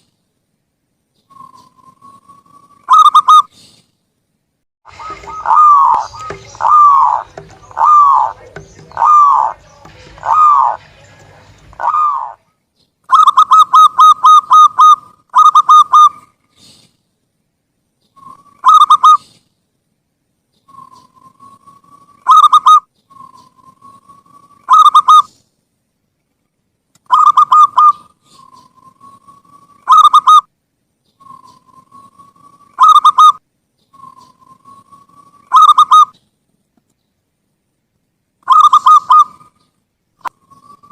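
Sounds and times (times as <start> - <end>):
dove cooing: 4.9 - 12.4, 13.1 - 16.3, 18.2 - 19.2, 27.1 - 30.4, 34.0 - 36.2, 38.5 - 39.5.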